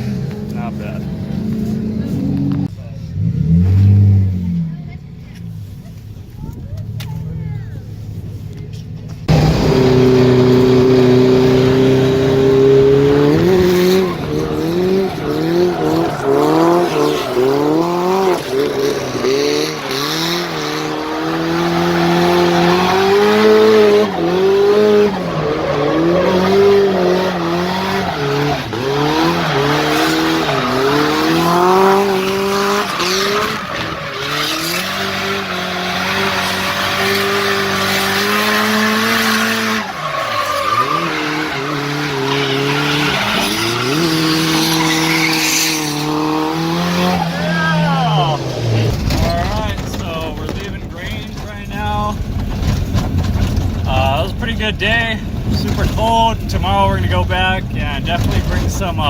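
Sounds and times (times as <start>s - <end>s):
car engine revving: 0.0s - 59.0s
tyre squeal: 10.2s - 49.6s.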